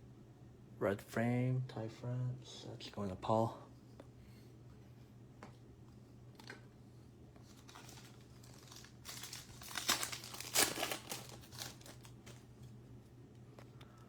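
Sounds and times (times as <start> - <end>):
wrapper crinkling and tearing: 7.4 - 12.5.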